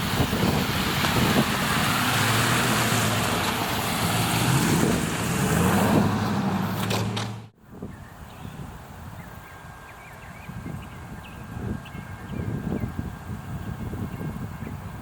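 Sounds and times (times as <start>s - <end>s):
engine hum: 0.0s - 7.6s.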